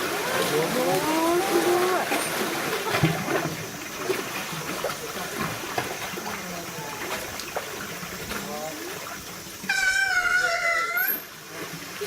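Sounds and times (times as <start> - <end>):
water splashing in a pool: 0.0 - 12.0
people's voices: 0.2 - 3.0.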